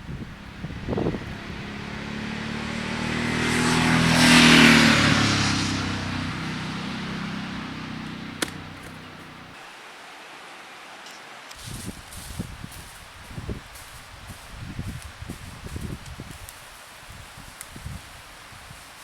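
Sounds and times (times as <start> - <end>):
vehicle driving past: 0.0 - 9.6
sharp click: 8.4 - 9.0.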